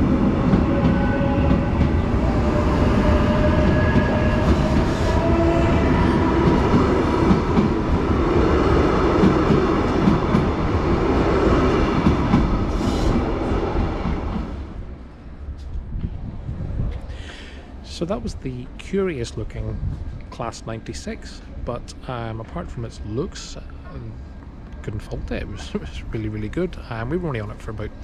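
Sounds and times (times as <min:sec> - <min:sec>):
wheels rumbling on rail: 0:00.0 - 0:20.4.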